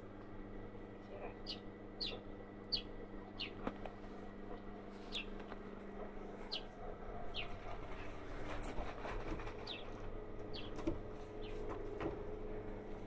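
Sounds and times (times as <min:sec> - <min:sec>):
bird chirping: 0:01.4 - 0:03.6, 0:05.1 - 0:05.3, 0:06.5 - 0:06.7, 0:07.3 - 0:07.6, 0:09.6 - 0:10.8.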